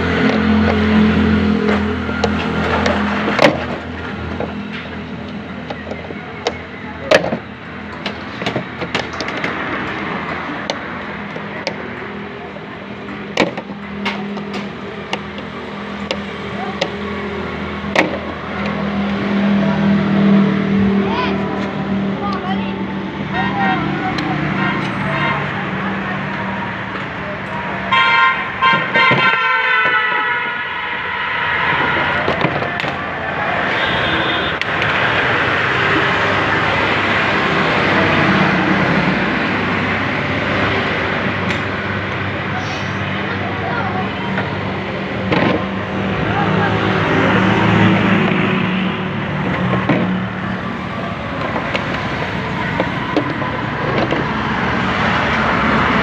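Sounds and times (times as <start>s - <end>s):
steady background noise: 0.0s - 56.0s
sharp clicks and knocks: 1.6s - 17.1s, 17.8s - 19.2s, 32.2s - 33.0s, 51.3s - 54.4s.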